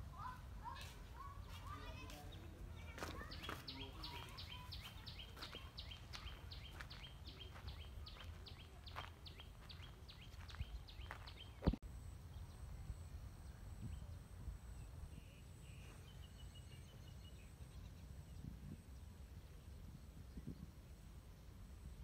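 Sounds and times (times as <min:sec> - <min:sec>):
faint rural background: 0:00.0 - 0:22.0.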